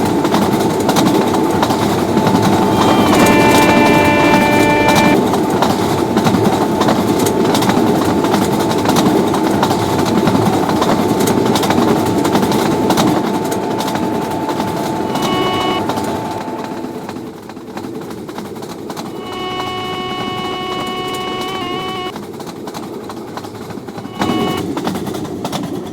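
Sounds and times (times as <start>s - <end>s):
locomotive horn: 0.0s - 5.3s, 6.4s - 17.1s, 19.1s - 22.1s, 24.0s - 24.8s.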